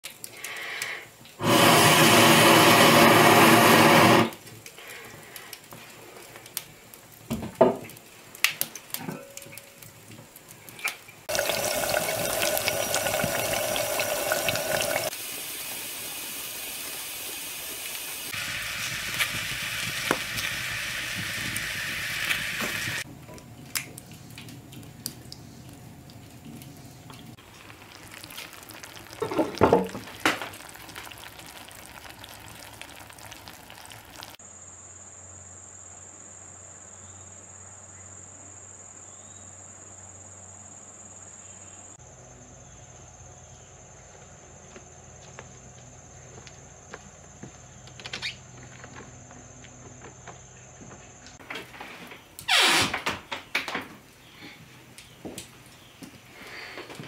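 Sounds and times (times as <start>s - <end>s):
eggplant sizzling in hot fat: 0.0s - 23.1s, 23.7s - 34.4s
fire crackling: 0.0s - 34.4s.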